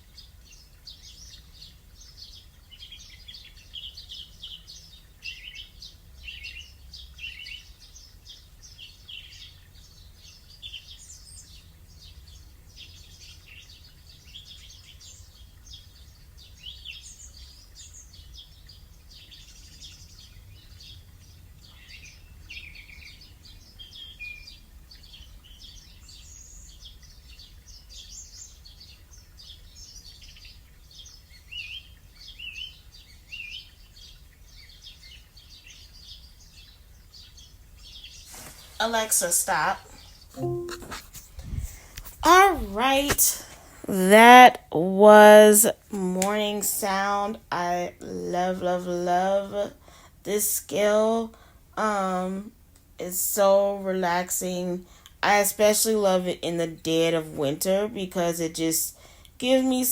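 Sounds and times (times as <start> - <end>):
recorded birdsong over speaker: 0.0 - 59.9
low steady hum: 39.0 - 52.7.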